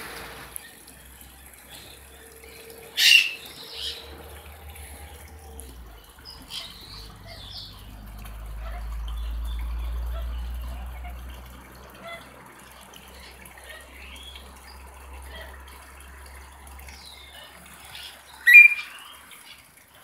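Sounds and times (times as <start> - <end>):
birds calling: 0.6 - 11.3, 16.9 - 19.8.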